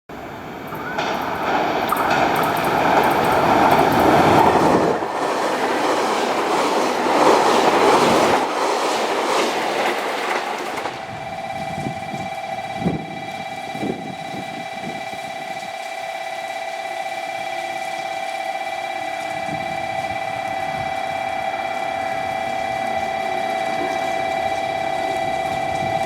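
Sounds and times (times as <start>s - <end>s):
electric train rumbling: 0.1s - 26.0s
wheels clattering over rail joints: 0.3s - 11.1s
steady high tone: 10.8s - 26.0s.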